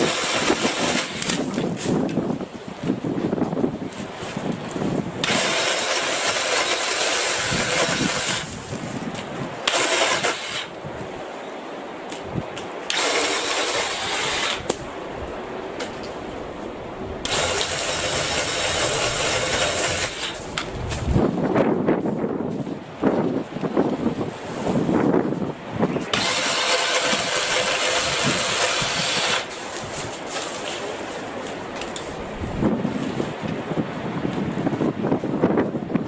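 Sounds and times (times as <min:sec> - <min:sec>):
battery saw cutting branches: 0:00.0 - 0:01.6, 0:05.2 - 0:08.9, 0:09.6 - 0:10.8, 0:12.8 - 0:14.8, 0:17.2 - 0:21.1, 0:26.0 - 0:30.9.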